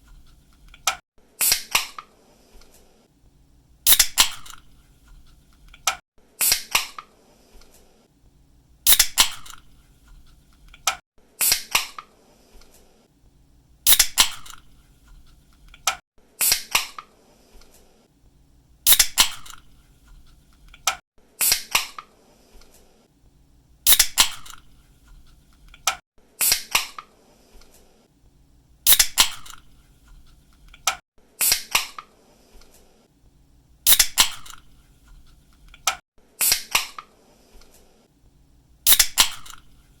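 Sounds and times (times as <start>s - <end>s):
can hissing: 3.9s - 4.6s, 8.9s - 9.6s, 13.9s - 14.6s, 18.9s - 19.6s, 23.9s - 24.6s, 28.9s - 29.6s, 33.9s - 34.6s, 38.9s - 39.6s.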